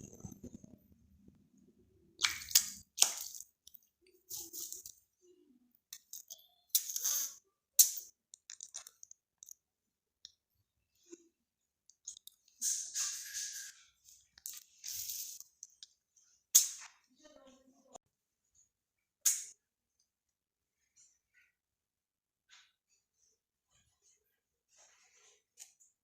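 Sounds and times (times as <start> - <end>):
bird splashing water: 2.2 - 3.5.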